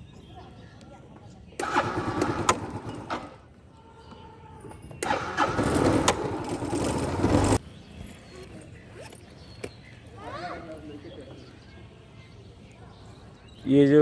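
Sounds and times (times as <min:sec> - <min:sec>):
vehicle engine rushing: 0:05.0 - 0:07.6.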